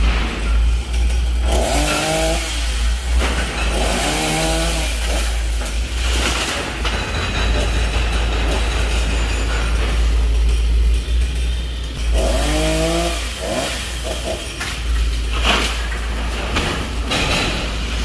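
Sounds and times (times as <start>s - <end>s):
chainsaw revving: 1.4s - 5.5s, 12.1s - 14.5s.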